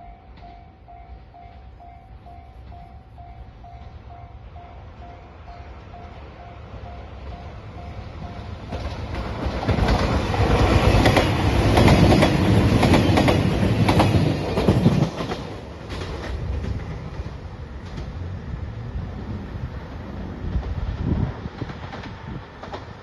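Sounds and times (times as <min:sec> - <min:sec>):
crossing warning bell: 0:00.0 - 0:09.6
train wheels clattering: 0:07.2 - 0:18.3, 0:19.8 - 0:23.0.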